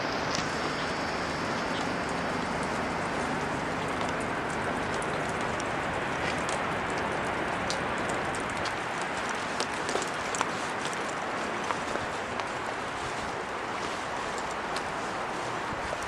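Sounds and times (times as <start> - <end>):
rain: 0.0 - 16.0
wind: 0.0 - 16.0
light ticks: 3.8 - 12.5.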